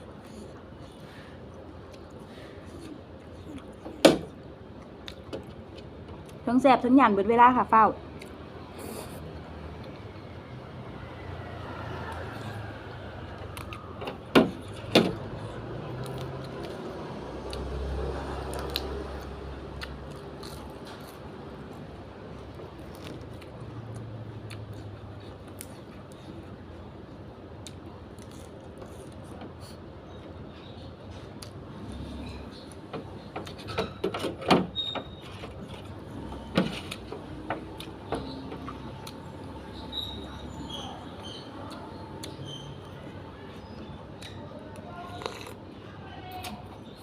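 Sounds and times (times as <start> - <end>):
chewing: 0.2 - 3.8, 14.6 - 21.8, 22.4 - 26.8, 44.2 - 45.7.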